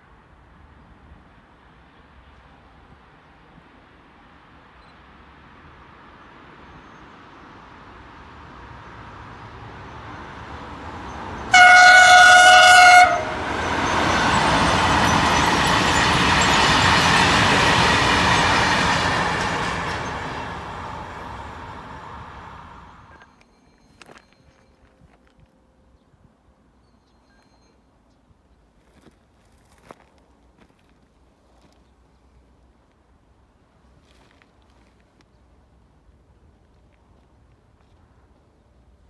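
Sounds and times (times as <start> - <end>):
train rushing past: 7.0 - 23.2
train rumbling: 7.4 - 25.8
train horn blast: 11.5 - 14.6.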